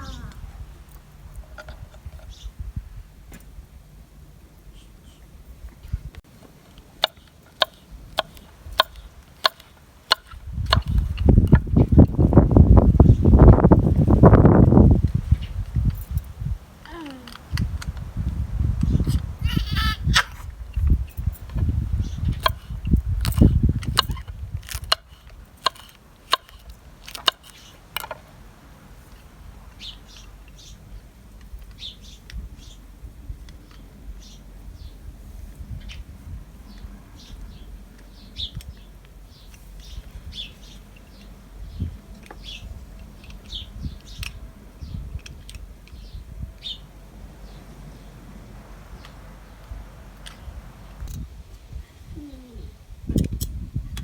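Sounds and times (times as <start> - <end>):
small bird chirping: 0.0 - 0.6, 2.2 - 2.6, 16.9 - 17.4, 18.8 - 20.4.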